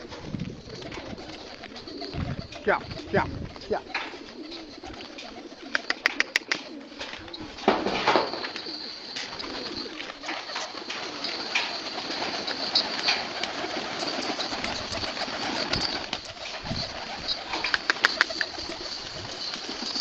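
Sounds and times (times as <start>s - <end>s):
pigeons cooing: 0.0s - 20.0s
sharp clicks: 5.8s - 6.7s.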